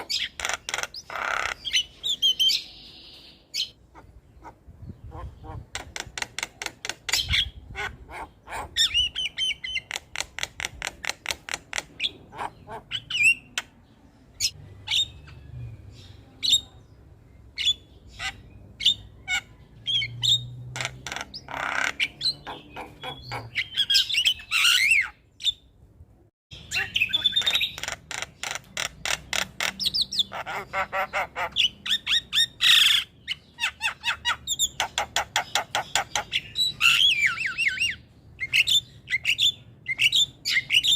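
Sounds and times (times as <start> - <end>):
myna bird singing harsh clicks: 5.7 - 7.4, 9.0 - 12.2, 32.0 - 37.8.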